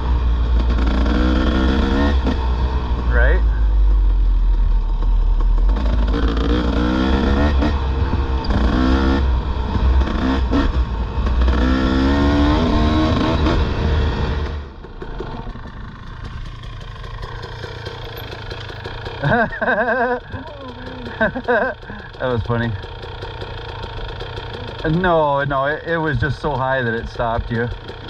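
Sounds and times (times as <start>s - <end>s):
dirt bike engine revving: 0.0s - 4.0s, 4.8s - 28.0s
heavy low rumble: 2.1s - 19.0s.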